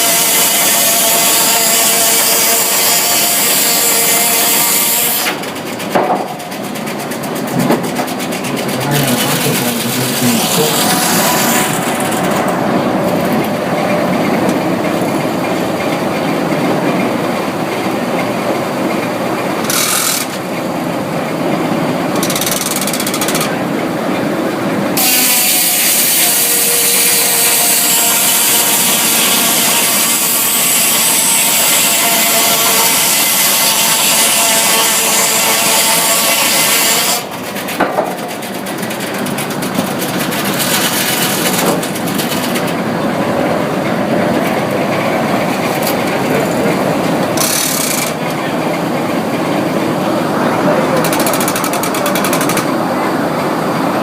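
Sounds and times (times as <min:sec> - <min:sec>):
saw cutting through log: 0:00.0 - 0:13.4, 0:19.6 - 0:20.4, 0:25.0 - 0:42.7, 0:47.3 - 0:48.5.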